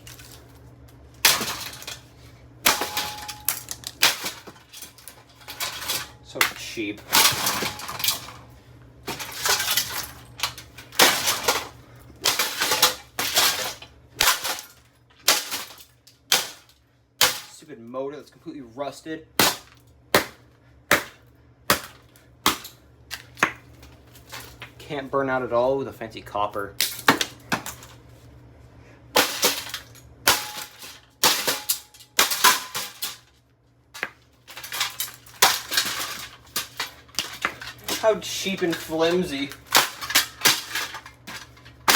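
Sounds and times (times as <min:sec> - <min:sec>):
plastic cracking and crunching: 0:00.0 - 0:06.4, 0:34.0 - 0:41.9
plastic fan housing smashed: 0:01.2 - 0:08.4, 0:09.1 - 0:17.6, 0:26.8 - 0:28.0, 0:29.2 - 0:33.3, 0:34.0 - 0:41.9
rattle of loose parts: 0:01.2 - 0:08.5, 0:09.1 - 0:17.6, 0:34.0 - 0:41.9.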